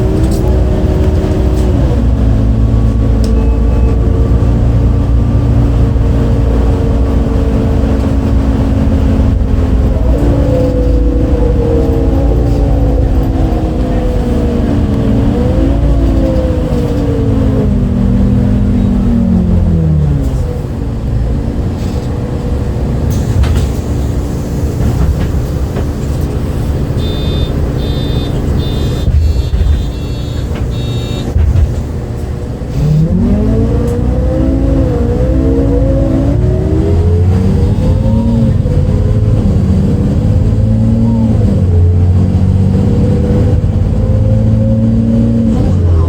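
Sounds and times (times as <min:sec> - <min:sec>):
bus diesel engine: 0:00.0 - 0:46.0
short high beeps: 0:03.3 - 0:04.0, 0:27.0 - 0:31.3.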